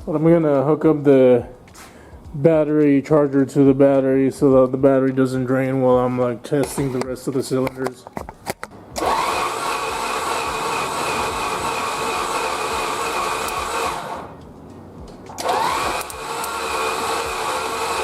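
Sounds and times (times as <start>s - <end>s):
starter motor cranking engine: 9.0s - 14.4s, 15.4s - 18.0s.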